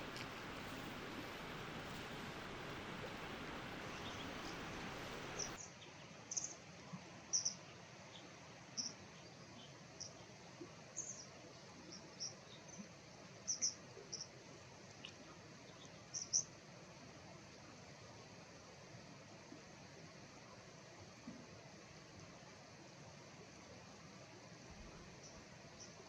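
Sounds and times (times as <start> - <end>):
mountain stream rushing: 0.0 - 5.6
small bird sharp high calls: 16.1 - 16.5.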